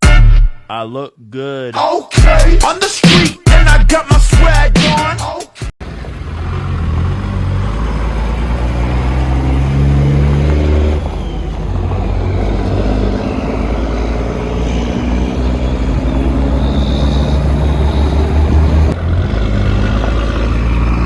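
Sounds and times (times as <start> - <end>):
diesel truck engine accelerating: 5.8 - 21.0.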